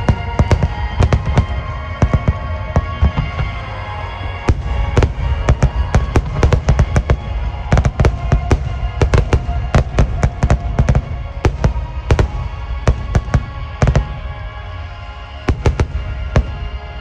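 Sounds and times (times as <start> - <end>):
deep continuous rumble: 0.0 - 17.0
fireworks bursting: 0.0 - 17.0
music playing: 0.0 - 17.0.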